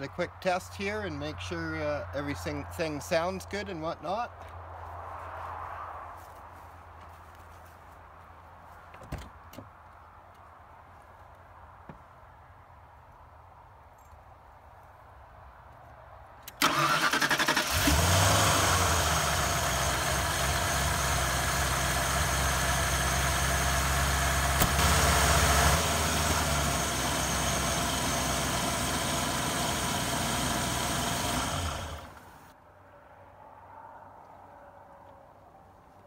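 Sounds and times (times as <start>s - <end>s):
car starter cranking: 16.5s - 22.2s, 23.1s - 32.4s
car engine idling: 16.6s - 32.5s.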